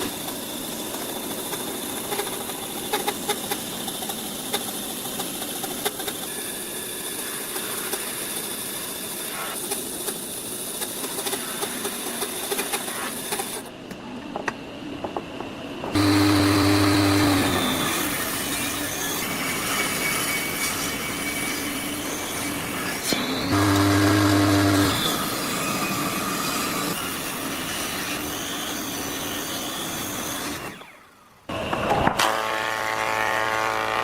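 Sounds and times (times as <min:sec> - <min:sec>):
electric power tool on wood: 0:00.0 - 0:13.7, 0:15.9 - 0:34.0.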